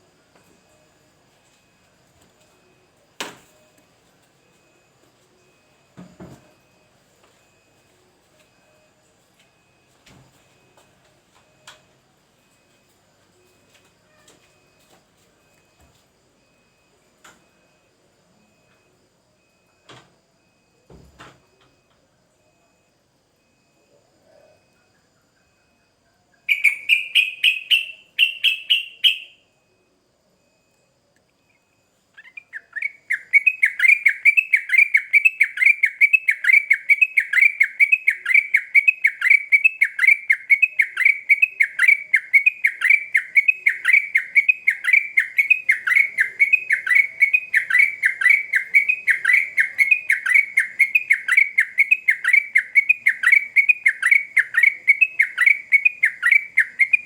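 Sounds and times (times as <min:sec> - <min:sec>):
bulbul singing: 0:26.4 - 0:29.4, 0:32.2 - 0:57.0.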